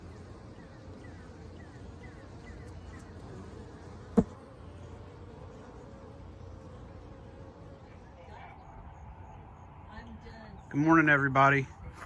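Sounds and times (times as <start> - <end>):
honeybees buzzing: 0.0 - 9.0.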